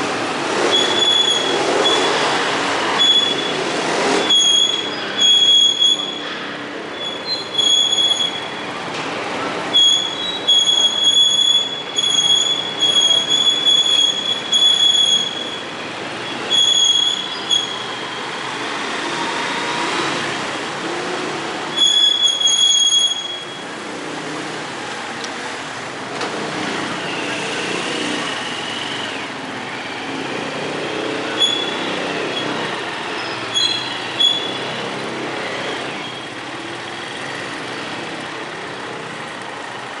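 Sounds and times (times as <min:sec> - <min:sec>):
vehicle traffic noise: 0:00.0 - 0:40.0
high squeal: 0:00.7 - 0:08.8, 0:09.7 - 0:19.9, 0:21.7 - 0:23.8, 0:26.9 - 0:37.5.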